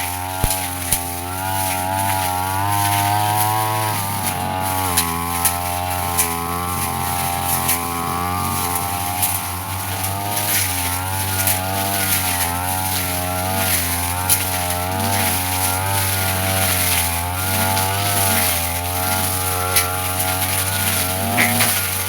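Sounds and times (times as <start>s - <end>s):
brush cutter cutting grass: 0.0s - 22.0s.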